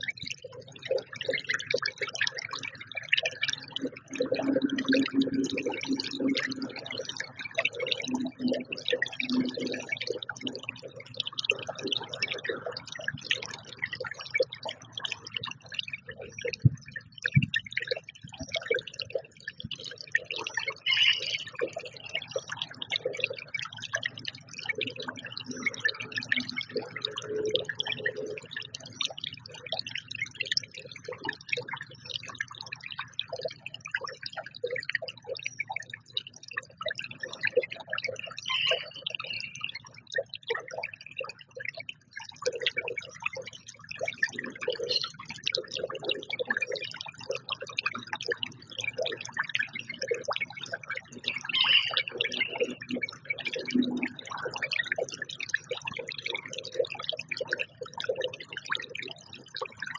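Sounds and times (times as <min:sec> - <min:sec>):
birds ticking and clicking: 0:02.2 - 0:56.6.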